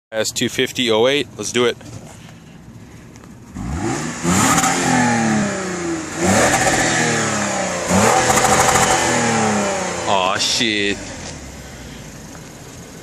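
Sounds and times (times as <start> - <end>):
car exhaust revving: 3.5 - 13.0.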